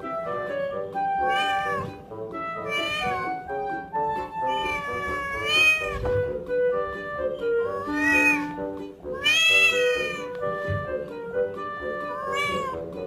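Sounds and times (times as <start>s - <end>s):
background music with held notes: 0.0s - 13.0s
cat meowing: 1.1s - 3.6s, 4.2s - 6.4s, 7.4s - 11.0s, 11.8s - 13.0s.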